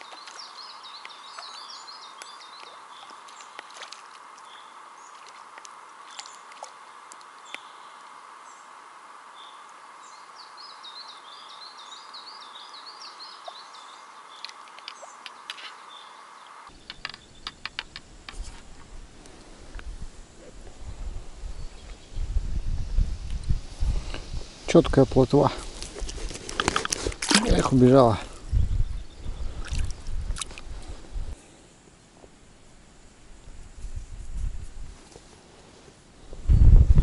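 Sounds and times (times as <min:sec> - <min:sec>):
small splashes: 0:00.0 - 0:07.6, 0:26.7 - 0:27.9, 0:29.6 - 0:30.7
songbird warbling: 0:00.0 - 0:18.9
steady outdoor hiss: 0:00.0 - 0:37.0.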